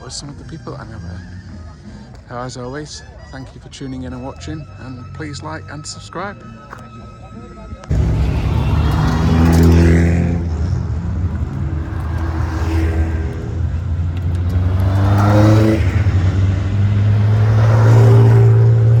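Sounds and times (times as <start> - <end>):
race car engines revving: 0.0 - 19.0
low engine hum: 7.9 - 19.0.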